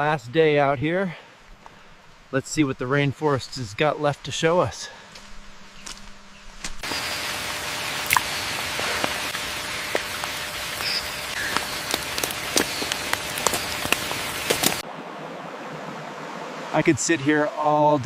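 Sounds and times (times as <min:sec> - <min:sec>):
raindrops striking close by: 0:06.6 - 0:14.8
steady rain: 0:06.8 - 0:18.0.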